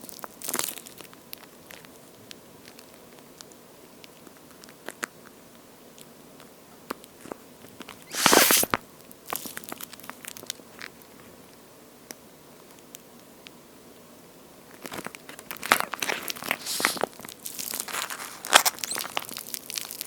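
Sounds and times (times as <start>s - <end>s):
squishy toy clicks and crackles: 0.0s - 2.0s, 6.9s - 11.0s, 14.8s - 20.0s
squishy toy squishing rush: 8.0s - 8.8s, 15.7s - 20.0s.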